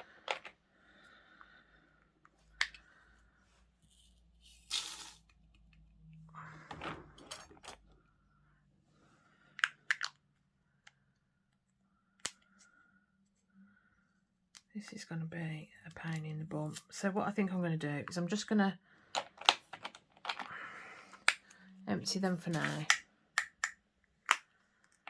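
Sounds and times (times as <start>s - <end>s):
plastic containers clicking and tapping: 19.2s - 21.6s, 22.5s - 25.0s.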